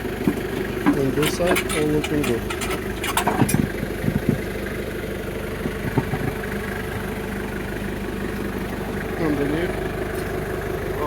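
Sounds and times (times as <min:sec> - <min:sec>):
car engine idling: 0:00.0 - 0:11.0
light knocks: 0:05.6 - 0:06.4.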